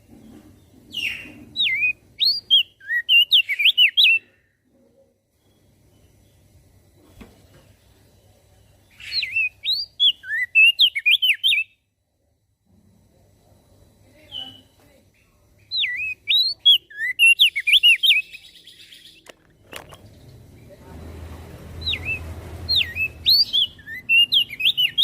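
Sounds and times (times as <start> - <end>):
bird singing swooping whistled notes: 0.9 - 4.2, 9.0 - 11.8, 15.7 - 19.2, 21.8 - 25.0.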